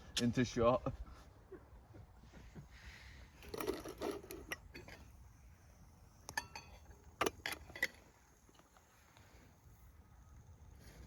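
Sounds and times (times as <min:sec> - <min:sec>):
metal cookware clinking: 0:06.3 - 0:08.0.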